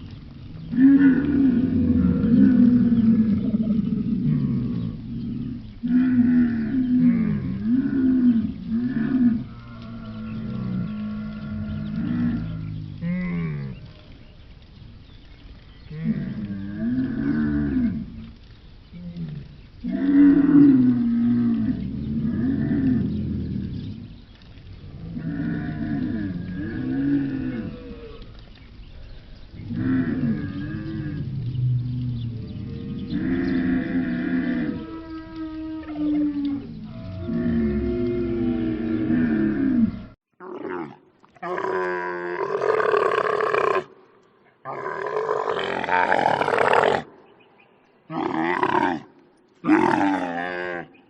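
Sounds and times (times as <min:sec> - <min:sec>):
camel calling: 0:32.8 - 0:47.2.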